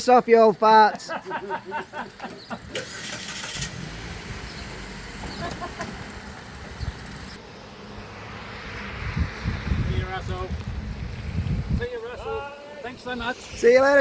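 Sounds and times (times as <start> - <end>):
car engine idling: 2.7 - 7.4.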